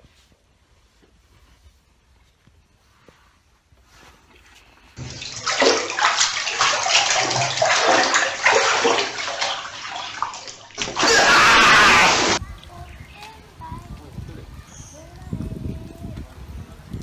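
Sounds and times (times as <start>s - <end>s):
water splashing and sloshing: 4.2s - 12.4s.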